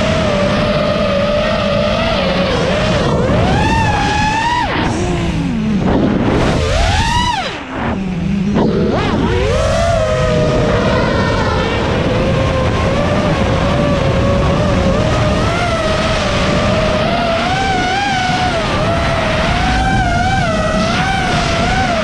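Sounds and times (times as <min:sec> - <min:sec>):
drone motors whining: 0:00.0 - 0:22.0
low rumble: 0:03.0 - 0:17.1.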